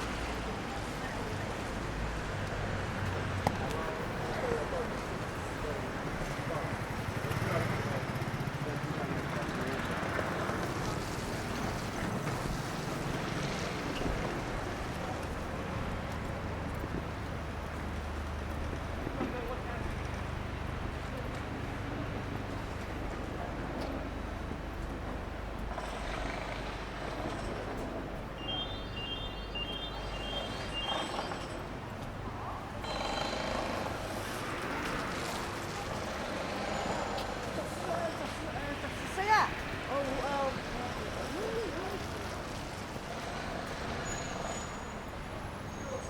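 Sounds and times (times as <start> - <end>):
low rumble of traffic: 0.0 - 46.0
electronic beeping tune: 28.4 - 31.6.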